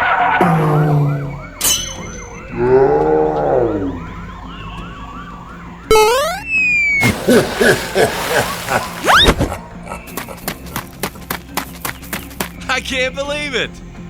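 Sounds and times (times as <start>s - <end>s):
cartoon police siren yelping: 0.0s - 7.0s.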